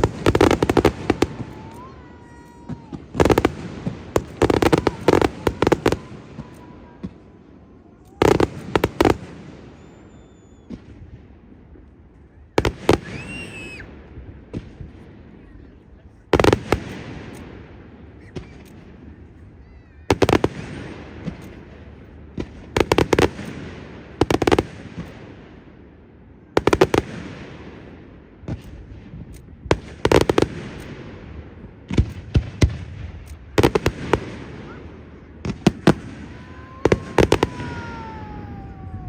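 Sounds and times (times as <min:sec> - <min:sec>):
firework shells bursting: 0:00.0 - 0:07.4, 0:35.4 - 0:39.0.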